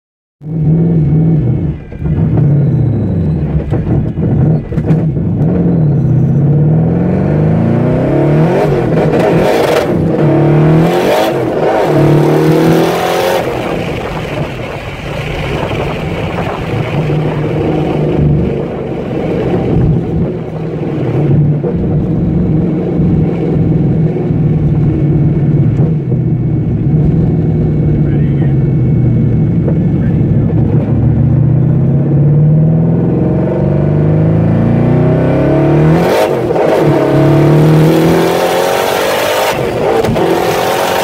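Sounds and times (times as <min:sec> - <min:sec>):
car engine accelerating hard: 0:00.4 - 0:41.0
loud rushing noise: 0:06.8 - 0:31.8.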